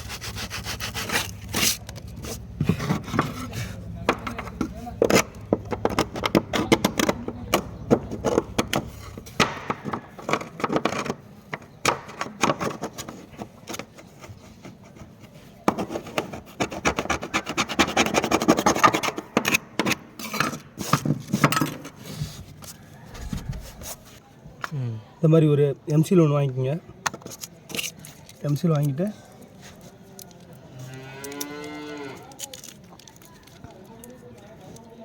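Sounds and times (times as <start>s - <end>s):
hand scraping cement roofing sheet: 0.0s - 11.2s, 12.5s - 24.2s.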